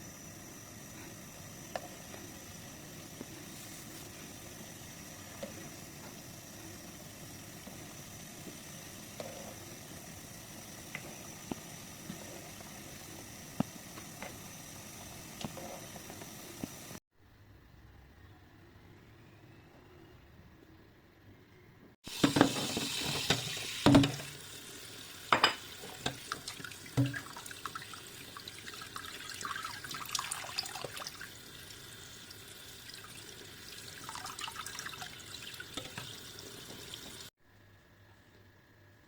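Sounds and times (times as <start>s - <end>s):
tap water running into sink: 22.1s - 37.3s
sharp knocks and clatter in water: 27.0s - 27.3s.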